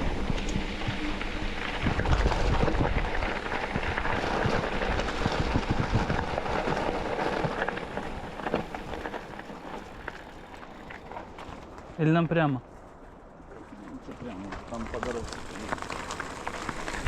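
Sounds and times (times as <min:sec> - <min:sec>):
wind buffeting on microphone: 0:00.0 - 0:11.9.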